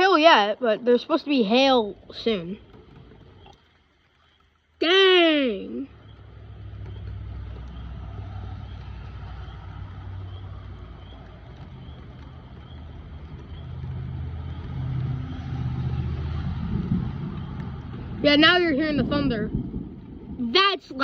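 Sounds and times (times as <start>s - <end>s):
thunder rumbling: 5.2s - 21.0s.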